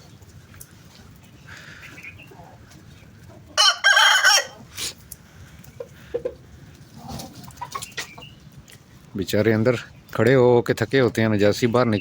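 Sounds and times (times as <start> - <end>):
rooster crowing: 3.6 - 4.7
soft rooster calls: 3.6 - 4.8.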